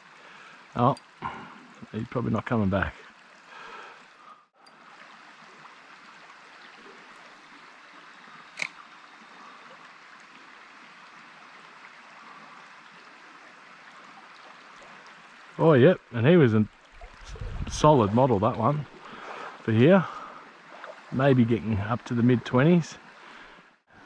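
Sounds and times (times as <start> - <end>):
creek water running: 0.0 - 24.0
sharp click: 8.6 - 8.8.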